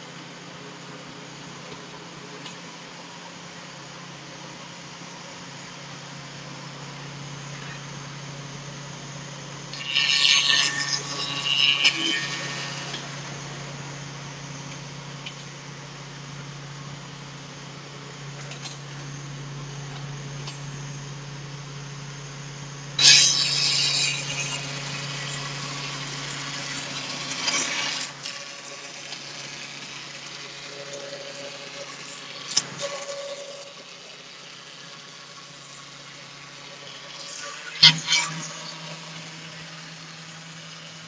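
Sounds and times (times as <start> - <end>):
machine motor hum: 0.0 - 41.0.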